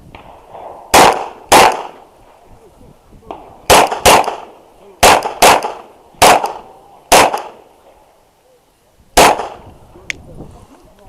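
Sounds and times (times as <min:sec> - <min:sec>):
pistol shots: 0:00.1 - 0:02.1, 0:03.3 - 0:07.7, 0:09.2 - 0:09.6.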